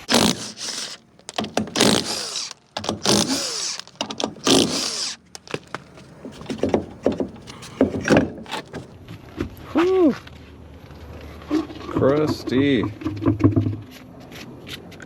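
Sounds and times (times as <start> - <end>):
impact wrench bursts: 0.0 - 5.4.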